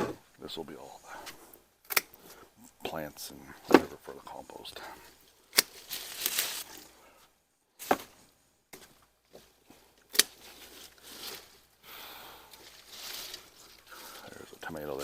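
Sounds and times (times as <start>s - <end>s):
foliage rustling: 3.4s - 7.2s, 7.8s - 15.0s
pruning shears snipping stems: 5.5s - 6.8s, 10.0s - 11.4s.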